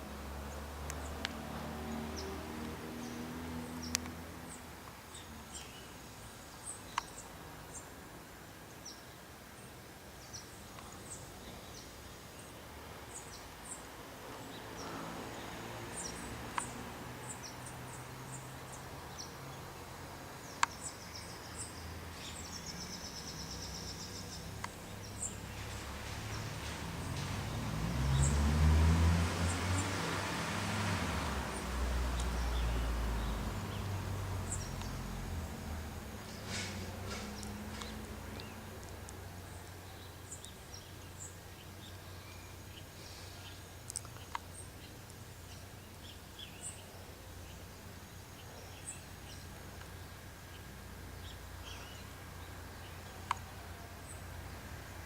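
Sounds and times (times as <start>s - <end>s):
sharp clicks: 3.9s - 4.2s
birds chirping: 29.4s - 55.0s.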